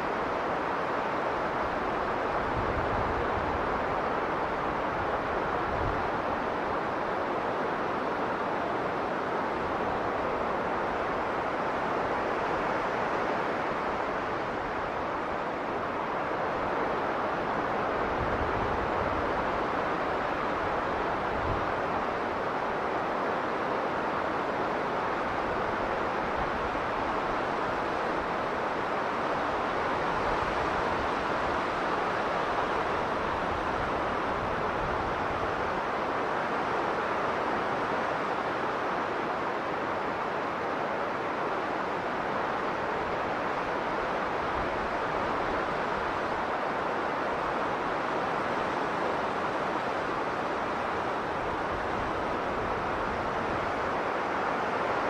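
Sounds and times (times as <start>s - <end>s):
blizzard wind blowing: 0.0s - 55.0s.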